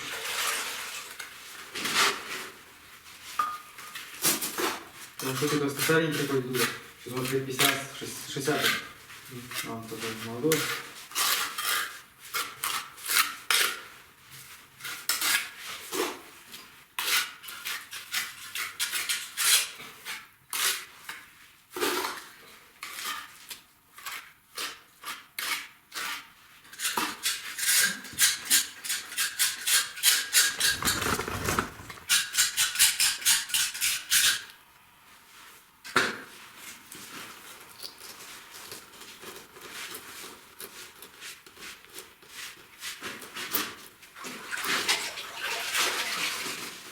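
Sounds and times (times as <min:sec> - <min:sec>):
hand tools scraping on brick: 0:29.0 - 0:34.1.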